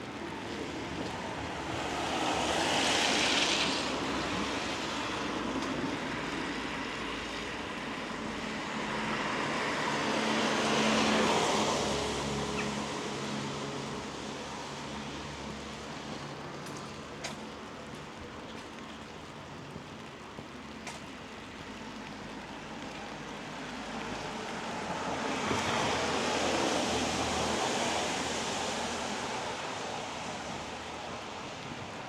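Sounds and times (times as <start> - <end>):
car passing on wet road: 0.1 - 32.0
light rain hiss: 13.8 - 32.0.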